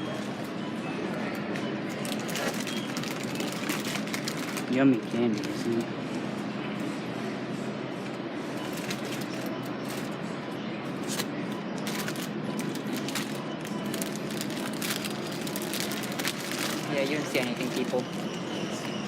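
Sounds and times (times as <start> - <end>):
store background noise: 0.0 - 19.0
items clicking and rustling: 1.5 - 5.8, 11.0 - 16.9.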